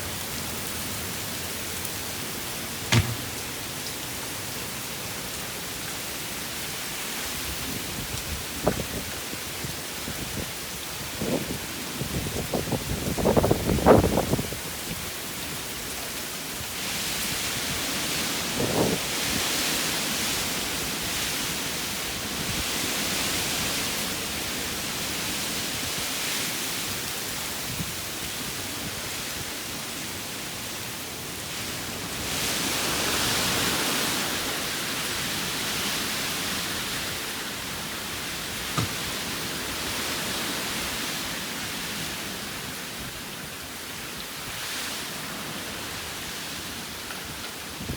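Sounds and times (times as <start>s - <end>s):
heavy storm rain: 0.0s - 47.9s
short thump: 2.9s - 3.5s, 38.8s - 39.1s.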